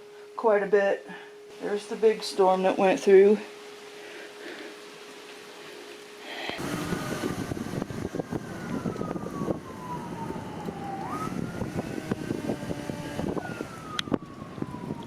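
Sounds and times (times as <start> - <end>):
siren wailing: 6.0 - 15.0
wind noise: 6.6 - 15.0.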